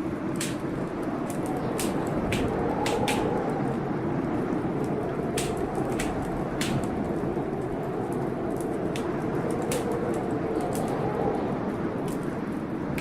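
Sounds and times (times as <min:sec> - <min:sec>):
rainstorm rushing: 0:00.0 - 0:13.0
wood fire crackling: 0:00.0 - 0:13.0
sharp pops from fire: 0:00.3 - 0:03.8, 0:04.5 - 0:11.0.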